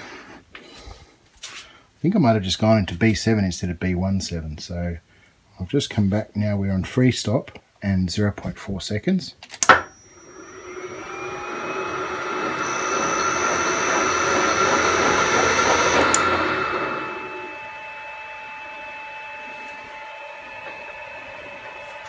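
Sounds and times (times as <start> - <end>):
lathe motor whining: 10.0 - 22.0.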